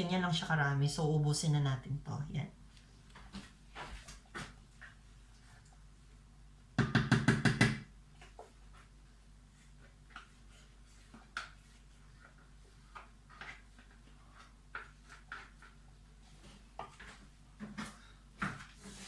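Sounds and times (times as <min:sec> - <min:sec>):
faint steady low hum: 0:00.0 - 0:06.8.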